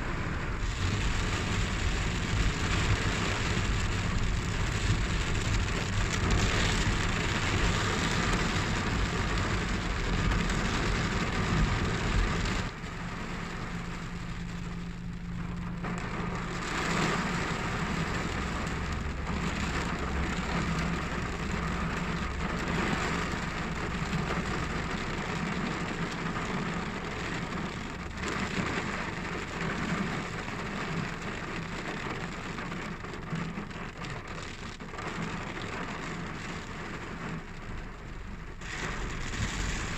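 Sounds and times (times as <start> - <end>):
low steady hum: 0.0 - 23.3
steady rain hiss: 0.0 - 39.9.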